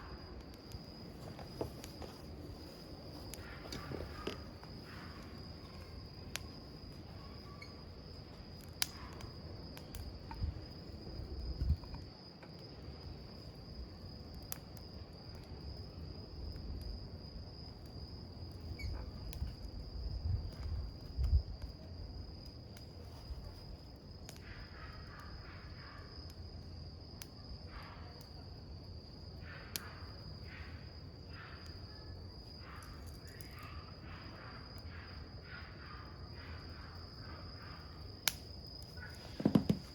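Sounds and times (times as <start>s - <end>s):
campfire crackling: 0.0s - 35.4s, 36.2s - 39.9s
insect trilling: 3.2s - 8.2s.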